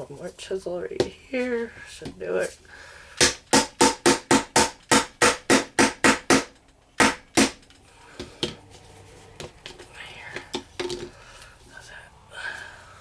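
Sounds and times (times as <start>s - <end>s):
hammer striking chisel: 3.2s - 7.7s.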